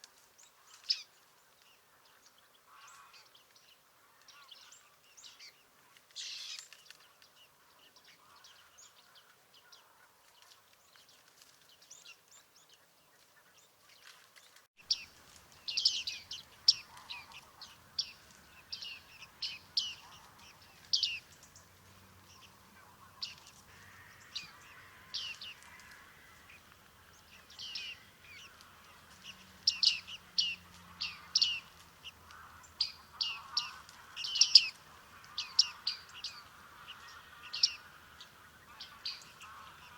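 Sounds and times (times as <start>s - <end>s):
high nasal bird calls: 14.9s - 39.9s.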